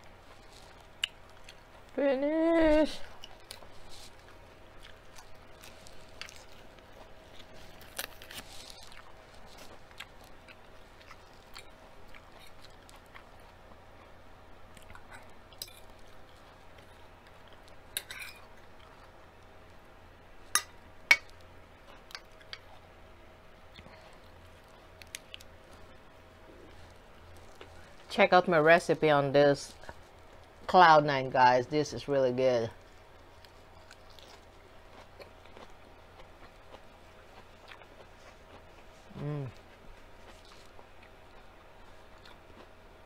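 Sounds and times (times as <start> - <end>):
chewing lettuce: 0.2 - 2.0, 2.7 - 19.2, 32.8 - 43.0.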